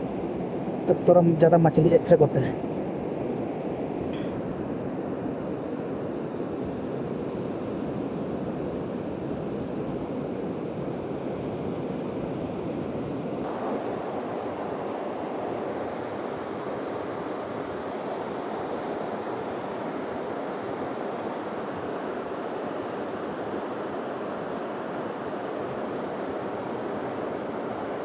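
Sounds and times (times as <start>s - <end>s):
flowing river water: 13.4s - 28.0s
heavy rain: 13.4s - 28.0s.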